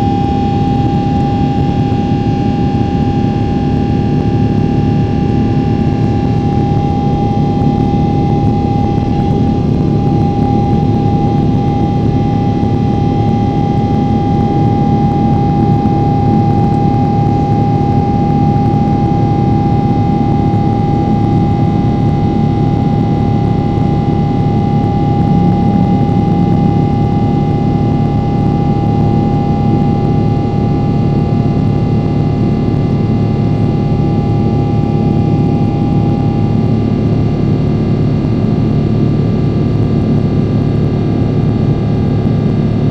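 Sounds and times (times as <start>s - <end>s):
airliner cabin engine noise: 0.0s - 42.9s
steady whine: 0.0s - 42.9s.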